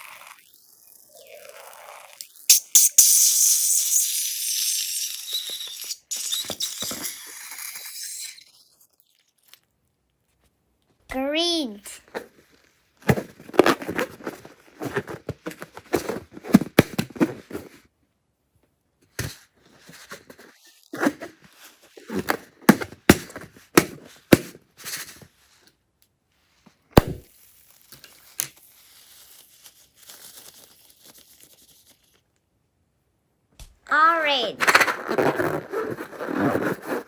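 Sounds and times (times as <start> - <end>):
sharp knock: 27.0 - 27.2.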